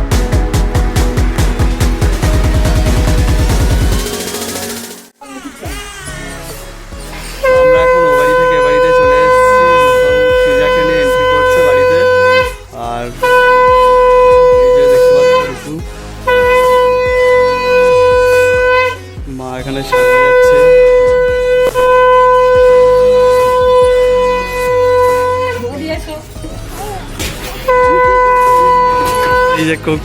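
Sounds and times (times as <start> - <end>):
conch shell blasts: 7.3 - 12.6.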